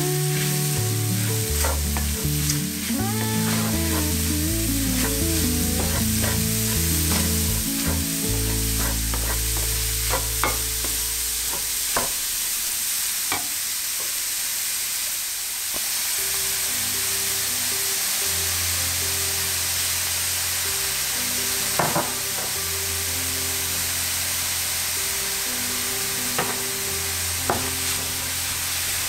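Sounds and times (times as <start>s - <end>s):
vegetables sizzling in a frying pan: 0.0s - 29.0s
wooden spatula scraping a pan: 0.2s - 12.1s, 27.5s - 29.0s.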